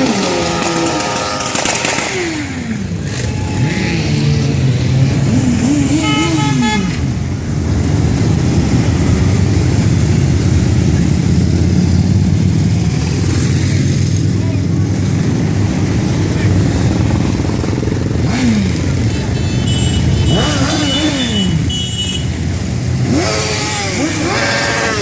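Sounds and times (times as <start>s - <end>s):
horn toot: 0.0s - 2.5s, 5.6s - 7.2s, 18.3s - 22.4s
motorcycle engines: 0.0s - 25.0s.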